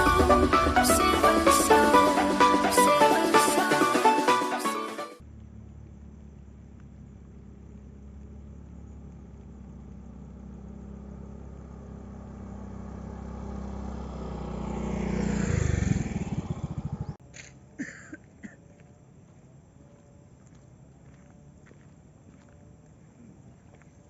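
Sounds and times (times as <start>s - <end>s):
vehicle engine passing by: 5.2s - 17.2s.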